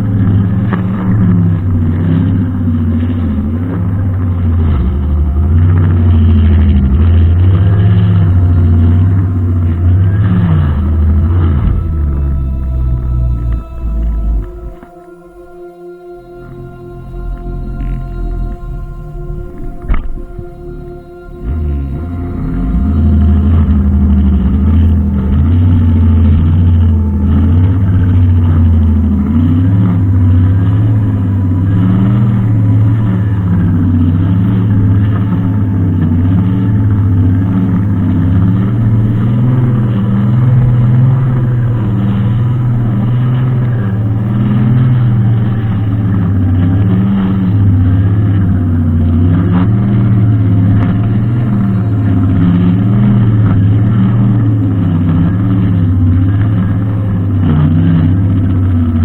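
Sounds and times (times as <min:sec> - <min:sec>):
brushcutter engine running: 0:00.0 - 0:59.0.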